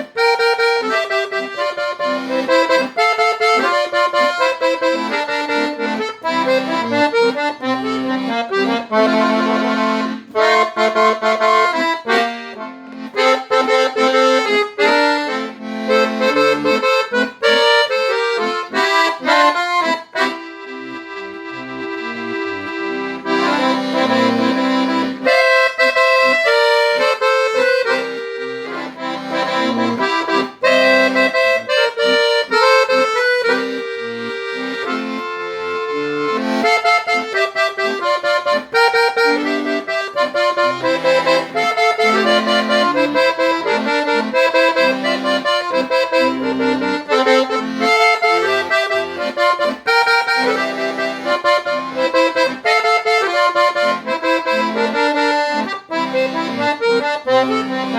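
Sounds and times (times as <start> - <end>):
accordion playing lively melody: 0.0 - 57.9.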